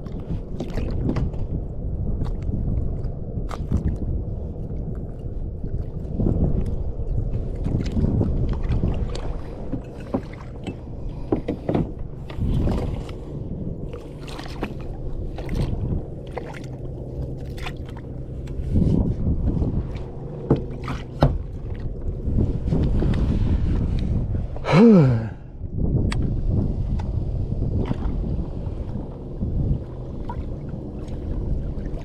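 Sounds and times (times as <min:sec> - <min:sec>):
water splashes: 0:00.0 - 0:01.5, 0:02.1 - 0:23.2, 0:27.7 - 0:32.0
water lapping against hull: 0:00.0 - 0:32.0
boat and gear knocks: 0:09.1 - 0:12.9, 0:20.3 - 0:21.8.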